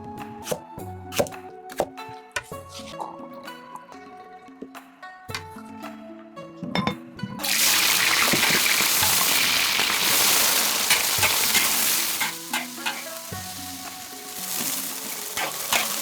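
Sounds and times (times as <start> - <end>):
food sizzling in hot oil: 7.4 - 16.0.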